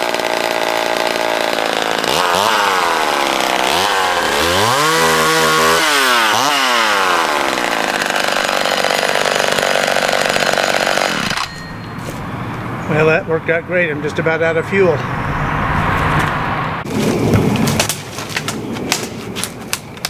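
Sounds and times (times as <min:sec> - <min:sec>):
chainsaw running at high revs: 0:00.0 - 0:11.5.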